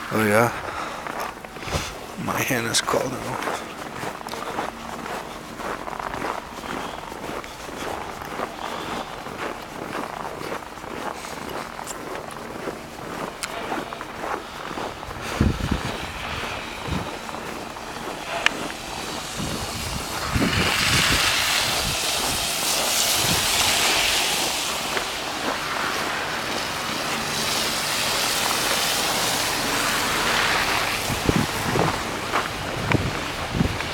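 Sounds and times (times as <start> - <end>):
tyre hiss of passing traffic: 4.7 - 10.3, 13.4 - 33.9.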